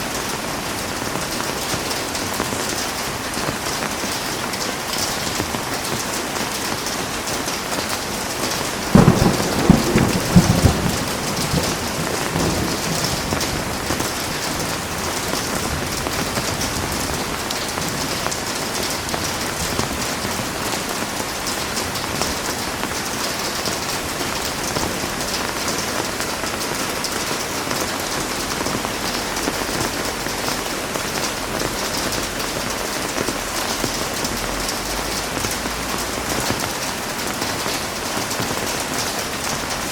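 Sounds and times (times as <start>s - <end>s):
heavy rain falling: 0.0s - 39.9s
thunder clap and rumble: 8.6s - 23.1s.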